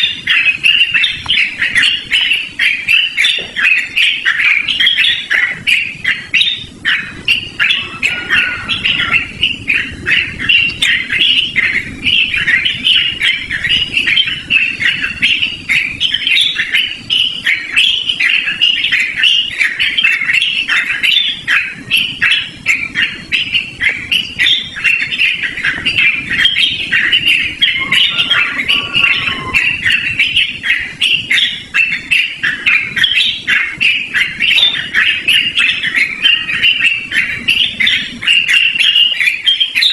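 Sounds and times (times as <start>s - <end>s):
bird singing chattering phrases: 0.0s - 39.9s
lower falling bird call: 24.5s - 31.6s.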